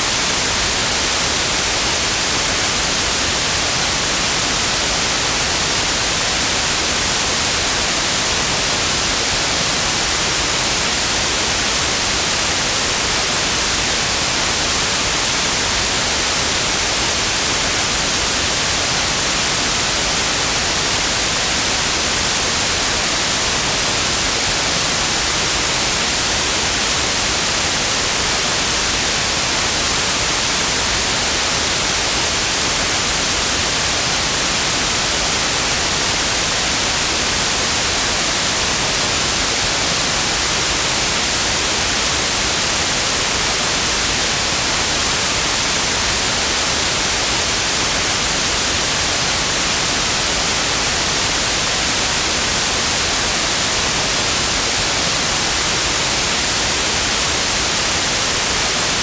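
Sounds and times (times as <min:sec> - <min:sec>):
synthesized white noise hiss: 0:00.0 - 0:59.0.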